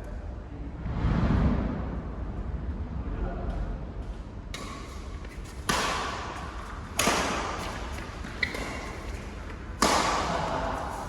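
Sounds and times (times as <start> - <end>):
rackets hitting shuttlecock: 4.6 - 5.0, 5.6 - 10.8.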